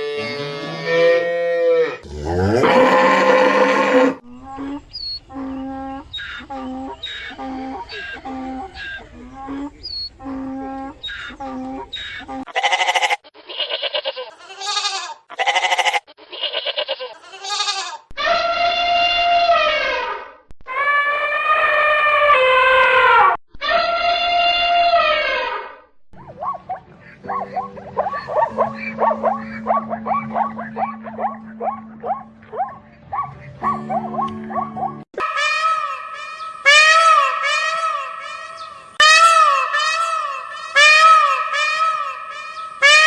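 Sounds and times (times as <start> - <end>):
high-pitched animal yelps: 18.2 - 42.6
drawn-out animal call: 26.9 - 34.2.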